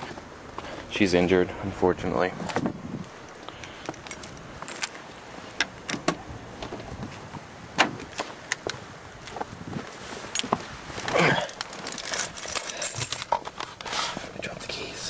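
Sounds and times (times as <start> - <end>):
keys jangling: 3.2 - 5.0, 11.4 - 13.4.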